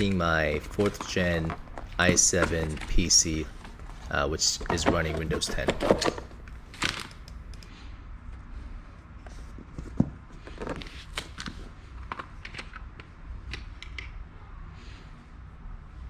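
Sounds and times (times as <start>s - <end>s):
soft rustling: 0.0s - 7.2s
low steady hum: 0.0s - 16.0s.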